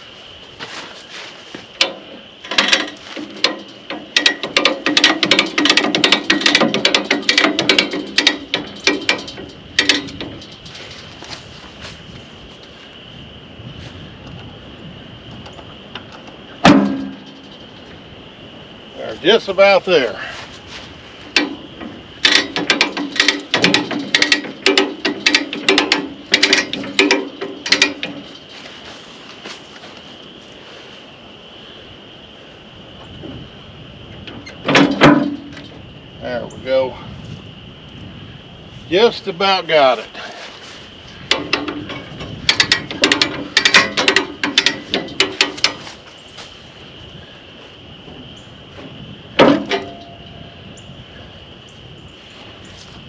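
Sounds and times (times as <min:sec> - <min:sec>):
hand ratchet clicking: 0:01.8 - 0:10.6, 0:22.2 - 0:28.4, 0:41.3 - 0:45.9.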